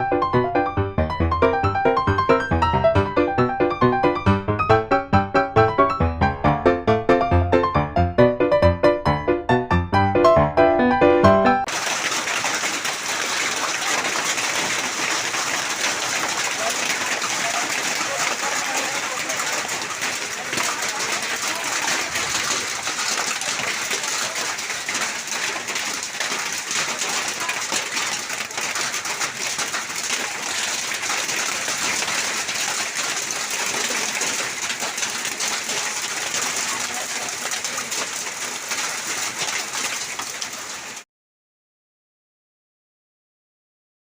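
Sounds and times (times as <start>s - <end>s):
hail and rain pattering: 11.6s - 41.0s.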